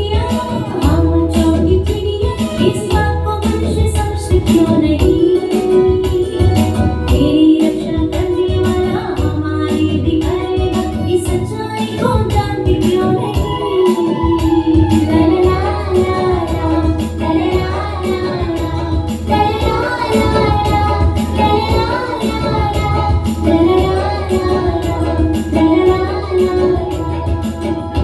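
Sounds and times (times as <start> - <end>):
bass line: 0.0 - 28.0
percussion beat: 0.0 - 28.0
people singing a song: 12.8 - 28.0.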